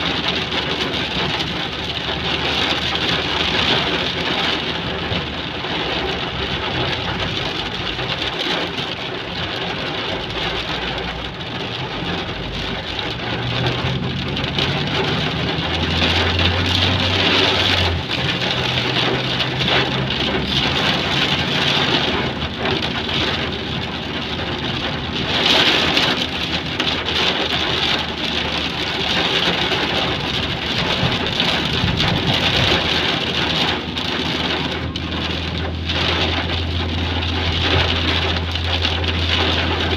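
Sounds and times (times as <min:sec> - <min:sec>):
heavy rain pouring: 0:00.0 - 0:39.9
vehicle engine hum: 0:00.0 - 0:39.9.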